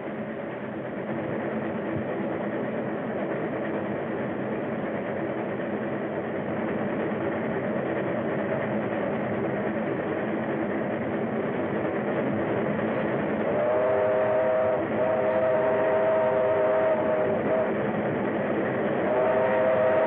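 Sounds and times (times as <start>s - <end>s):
steam locomotive rumbling: 0.0s - 20.0s
steam whistle blasts: 13.4s - 17.8s, 19.0s - 20.0s.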